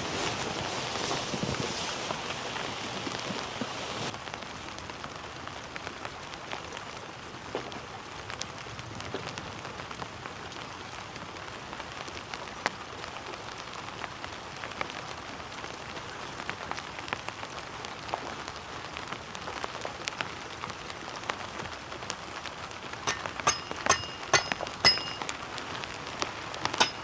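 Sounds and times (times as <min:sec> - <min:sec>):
heavy rain falling: 0:00.0 - 0:07.1.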